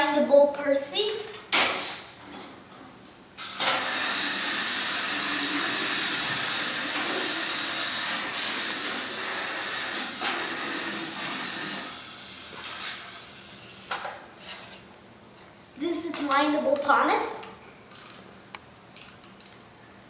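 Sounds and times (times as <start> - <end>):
toy engine steam hissing: 3.4 - 14.8.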